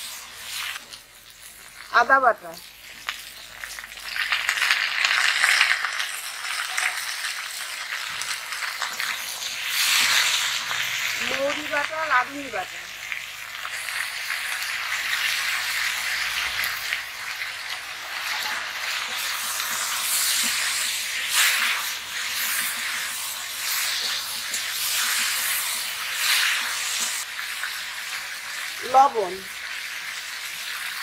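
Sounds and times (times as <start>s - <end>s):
vegetables sizzling in a wok: 0.0s - 31.0s
metal spatula scraping a wok: 9.0s - 11.1s, 18.0s - 27.2s.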